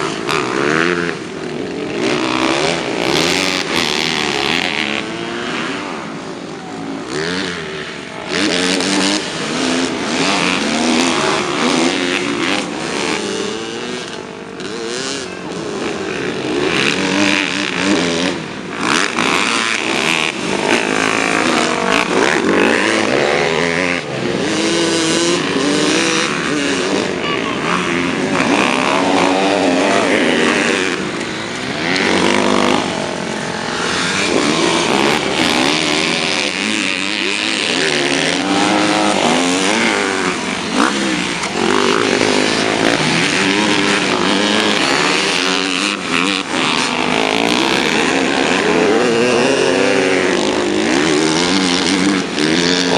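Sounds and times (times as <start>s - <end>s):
dirt bike engines revving: 0.0s - 52.9s.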